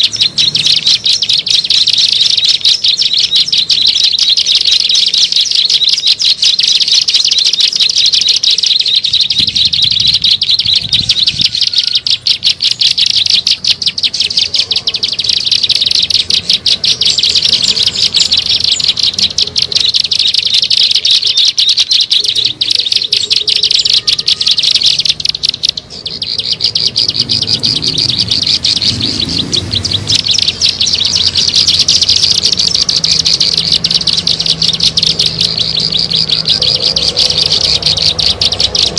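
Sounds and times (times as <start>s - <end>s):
bird song buzzy trill: 0.0s - 38.9s.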